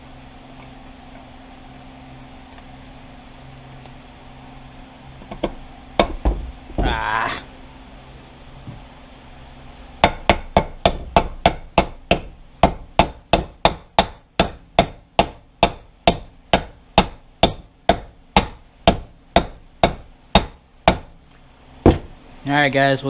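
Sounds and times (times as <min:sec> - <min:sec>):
hammer striking metal: 0:10.0 - 0:21.1.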